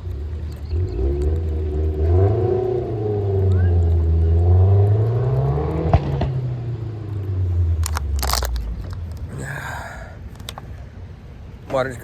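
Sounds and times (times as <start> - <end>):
car engine running: 7.4 - 10.7
sharp clicks: 7.8 - 9.3, 10.2 - 10.7
rustling and scraping: 7.8 - 9.4, 10.2 - 10.7.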